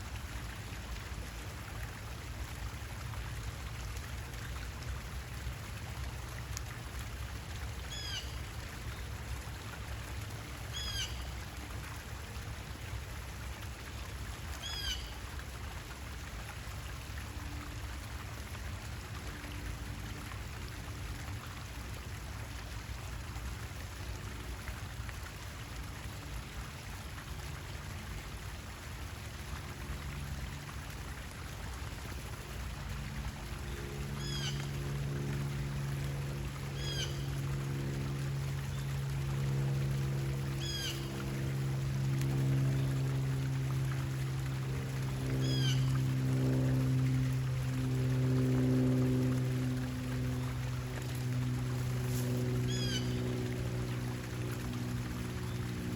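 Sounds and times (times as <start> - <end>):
running water: 0.0 - 55.9.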